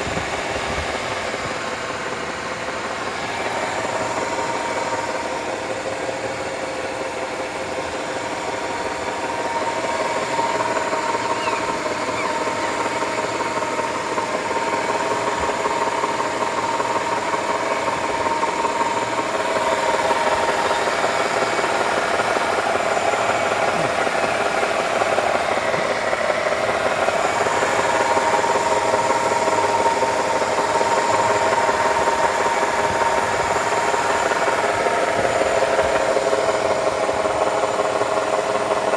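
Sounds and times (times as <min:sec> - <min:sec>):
car engine idling: 0:00.0 - 0:38.9
transmission whining: 0:07.9 - 0:38.7.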